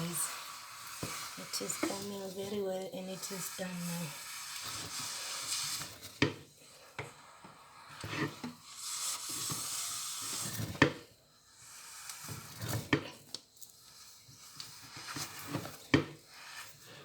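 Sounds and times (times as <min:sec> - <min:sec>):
soft hiss from hot food: 0:00.0 - 0:17.0.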